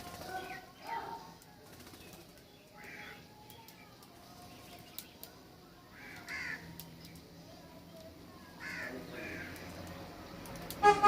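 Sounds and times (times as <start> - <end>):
crow cawing: 6.0 - 6.7, 8.6 - 9.6
vehicle horn toot: 10.8 - 11.0.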